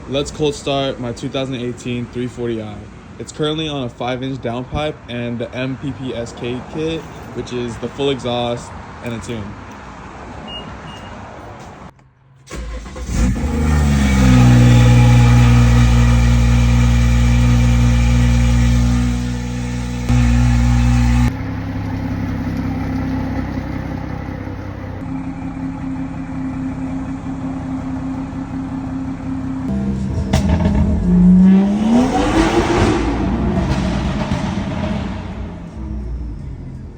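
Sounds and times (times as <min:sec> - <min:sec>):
car engine starting and idling: 0:11.9 - 0:36.9.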